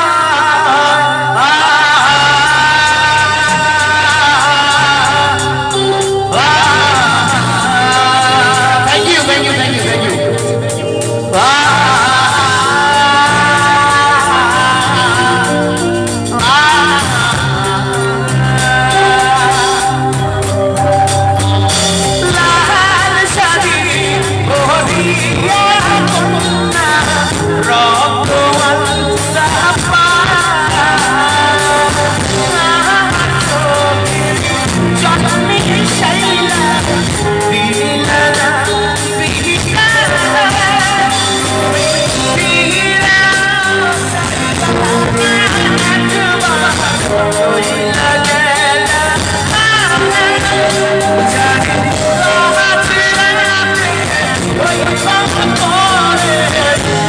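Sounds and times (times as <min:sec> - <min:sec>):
steady drum beat: 0:01.1 - 0:57.0
wavering melody line: 0:02.9 - 0:57.0.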